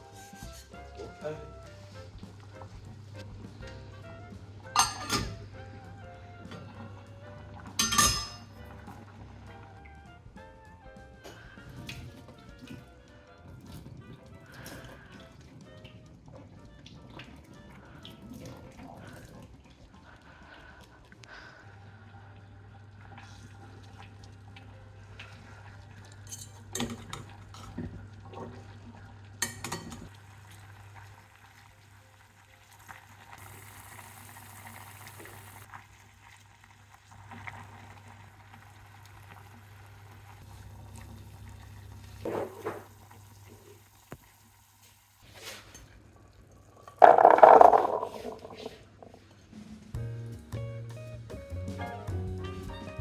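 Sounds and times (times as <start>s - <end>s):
utensils and dishes clinking: 4.6s - 5.5s, 7.6s - 8.8s, 26.2s - 27.8s, 29.4s - 30.1s
hiss: 33.4s - 35.7s, 42.6s - 45.7s.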